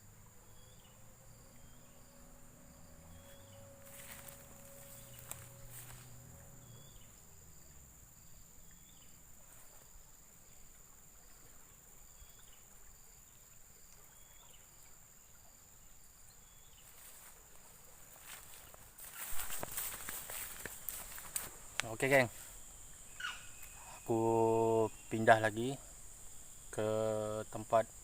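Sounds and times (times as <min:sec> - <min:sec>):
low hum: 0:00.0 - 0:09.5
insects droning: 0:00.0 - 0:28.0
short insect call: 0:00.0 - 0:28.0.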